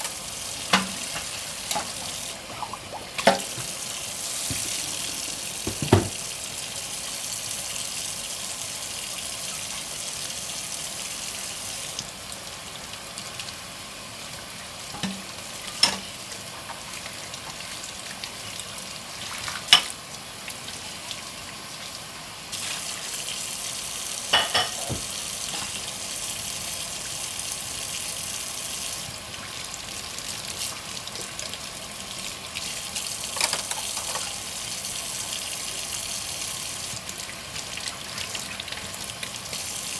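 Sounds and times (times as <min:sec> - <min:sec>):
water running at sink: 0:00.0 - 0:39.9
dish scrubbing: 0:00.5 - 0:07.1, 0:24.3 - 0:26.0, 0:33.3 - 0:34.6
dishes clinking together: 0:04.4 - 0:06.2, 0:24.3 - 0:25.8.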